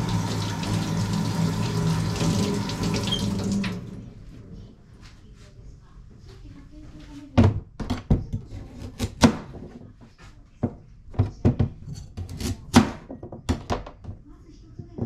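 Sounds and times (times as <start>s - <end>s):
kitchen items knocking and clattering: 7.3s - 8.5s, 9.1s - 14.2s.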